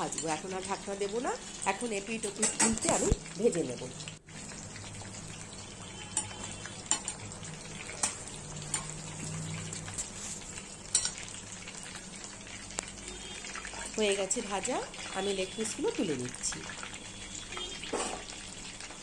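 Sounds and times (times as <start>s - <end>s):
metal spoons clicking against pan: 0.0s - 0.4s, 2.2s - 3.0s, 6.1s - 7.3s, 8.0s - 9.0s, 10.9s - 11.2s
chicken sizzling in oil: 0.0s - 19.0s.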